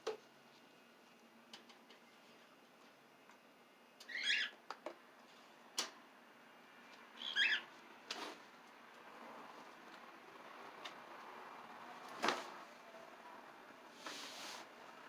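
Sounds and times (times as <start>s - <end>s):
bird chirping: 7.2s - 7.7s.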